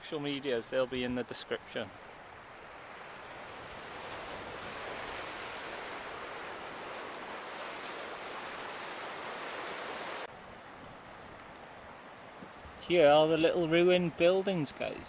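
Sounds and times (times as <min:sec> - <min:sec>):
sea surf breaking on shore: 0:02.7 - 0:10.3.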